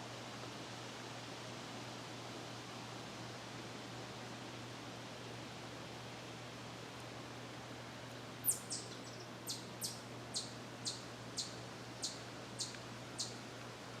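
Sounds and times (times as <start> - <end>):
bird chipping: 8.4 - 13.3.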